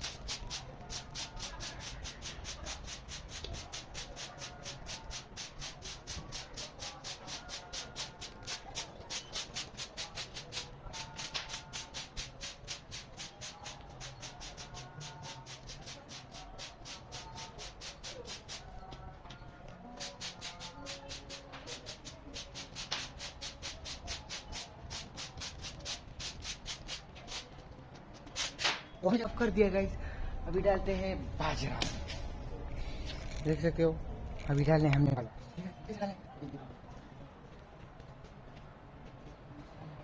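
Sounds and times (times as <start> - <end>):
broom sweeping ground: 0.0 - 18.8, 19.9 - 27.5.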